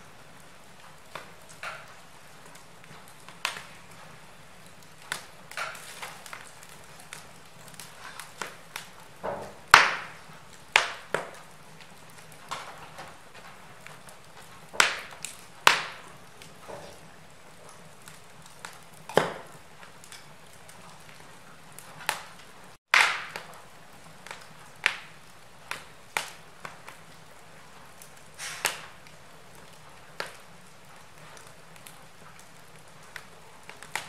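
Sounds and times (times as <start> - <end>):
wood fire crackling: 0.0 - 34.0
faint hiss: 28.2 - 29.0.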